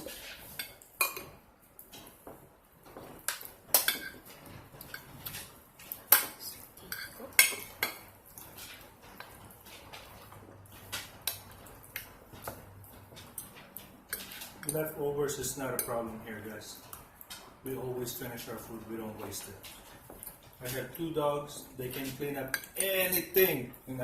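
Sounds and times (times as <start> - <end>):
cutlery clinking on a plate: 0.0 - 1.4, 2.9 - 10.1, 13.2 - 14.9.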